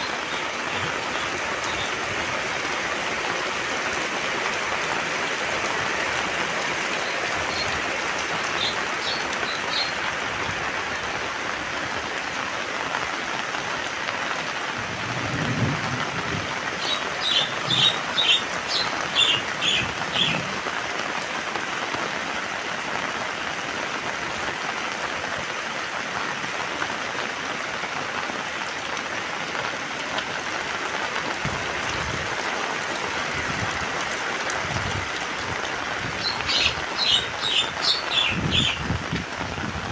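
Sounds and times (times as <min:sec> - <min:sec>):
heavy rain falling: 0:00.0 - 0:39.9
high bird chirps: 0:08.5 - 0:10.0, 0:16.8 - 0:20.4, 0:36.2 - 0:38.8.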